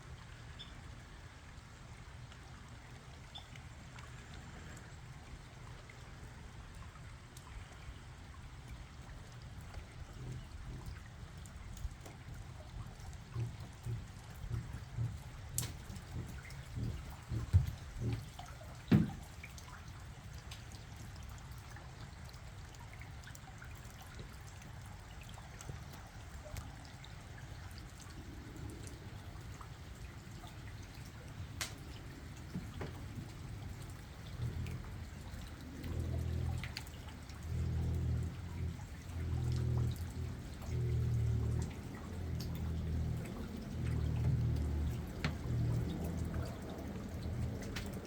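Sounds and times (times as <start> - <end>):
rain dripping: 0.0 - 48.0
water trickling and pouring: 0.0 - 48.0
low pulsing rumble: 27.6 - 48.0.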